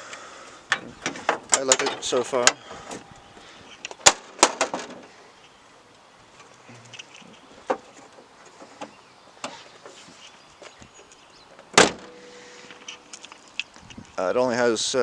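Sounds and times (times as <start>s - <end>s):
loud sharp thump: 11.8s - 12.2s.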